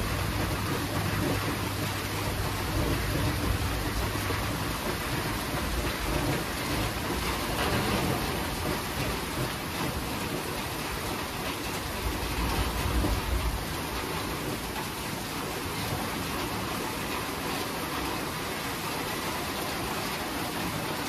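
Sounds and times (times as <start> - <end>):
low rolling thunder: 0.0 - 15.2
heavy rain falling: 0.0 - 21.0.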